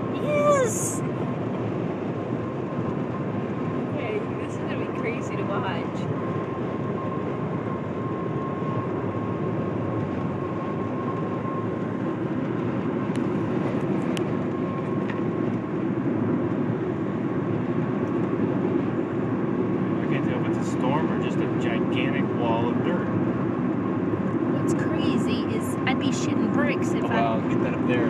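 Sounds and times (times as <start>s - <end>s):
car road and engine noise: 0.0s - 28.0s.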